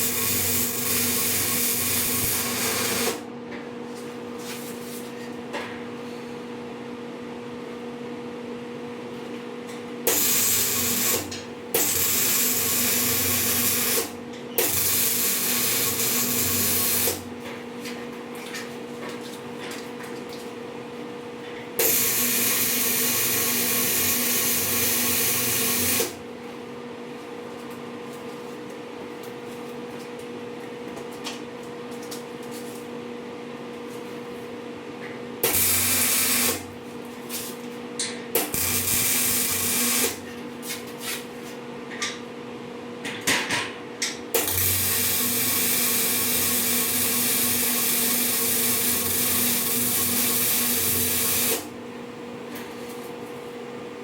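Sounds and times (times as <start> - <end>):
welding arc crackle: 0.0 - 3.2, 10.1 - 17.2, 21.8 - 26.2, 35.5 - 36.6, 38.4 - 40.2, 44.4 - 51.6
two-tone machine hum: 9.7 - 17.8.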